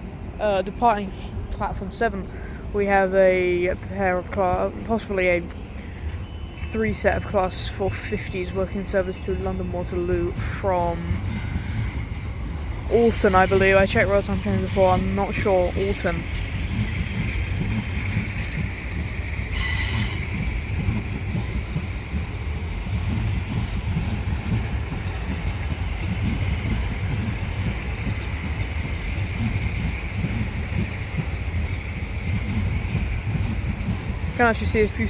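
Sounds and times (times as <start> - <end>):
train wheels rumbling on rail: 0.0 - 35.0
high wheel squeal: 8.1 - 21.7.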